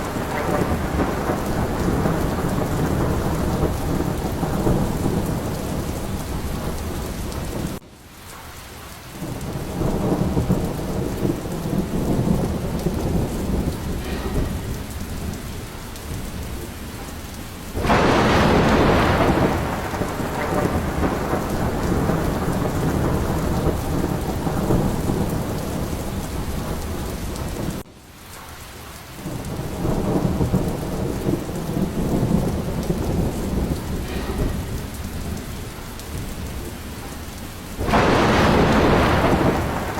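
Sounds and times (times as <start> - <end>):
rolling thunder: 0.0 - 7.8, 9.2 - 27.9, 29.2 - 39.9
sharp thunderclap: 0.0 - 7.8, 9.2 - 27.9, 29.2 - 39.9
heavy rain: 0.0 - 39.9.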